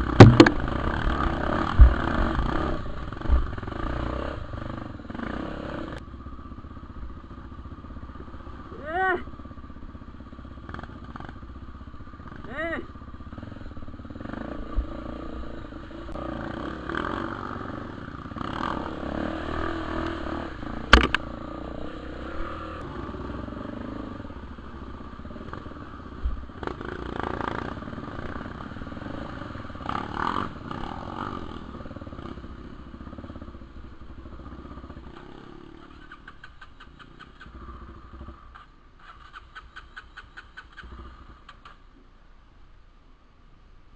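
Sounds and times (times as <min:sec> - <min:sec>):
motorcycle engine revving: 0:00.0 - 0:41.9
sharp knock: 0:00.2 - 0:00.7, 0:20.9 - 0:21.2.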